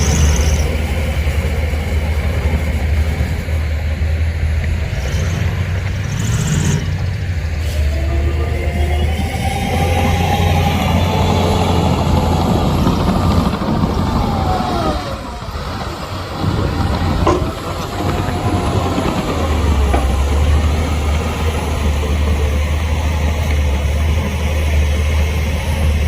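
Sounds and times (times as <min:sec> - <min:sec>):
engine whining tones: 0:00.0 - 0:26.0
heavy diesel machinery drone: 0:00.0 - 0:26.0.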